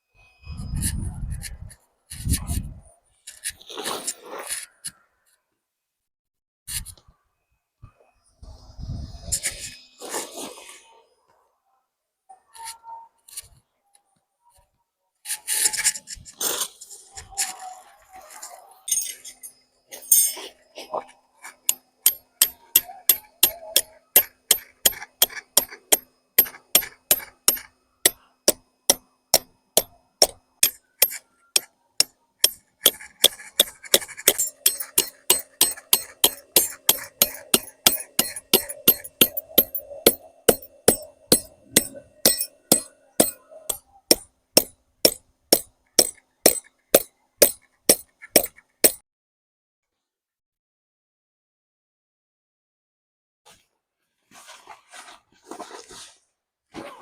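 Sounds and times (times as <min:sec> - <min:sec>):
sharp evenly paced knocks: 0:21.7 - 0:49.0.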